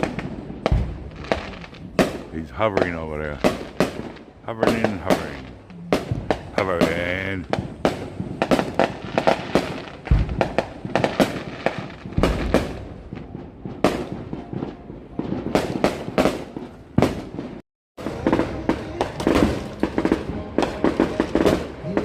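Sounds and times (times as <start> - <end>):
firecrackers popping and banging: 0.0 - 22.0
music: 18.0 - 22.0.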